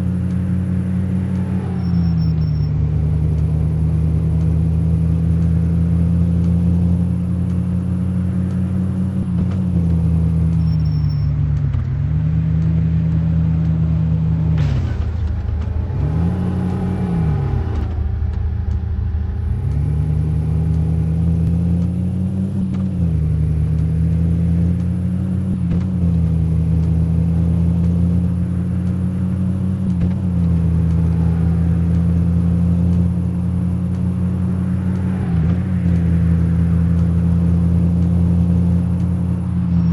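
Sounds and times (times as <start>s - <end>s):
car engine revving while driving: 0.0s - 39.9s.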